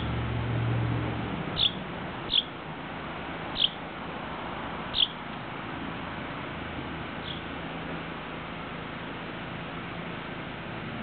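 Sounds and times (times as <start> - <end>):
baby bird chirping: 1.6 - 2.5, 3.5 - 3.8, 4.9 - 5.2, 7.2 - 7.5.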